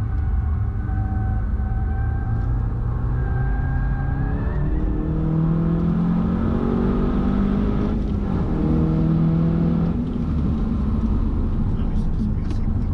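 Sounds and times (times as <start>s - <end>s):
car engine accelerating hard: 0.0s - 12.9s.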